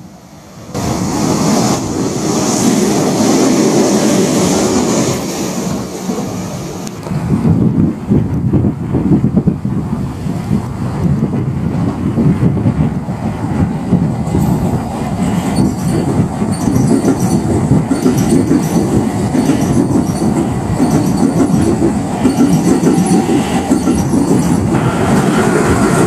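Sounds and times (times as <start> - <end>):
electric train rumbling past: 0.0 - 26.0
wheel and rail squeal: 14.3 - 26.0.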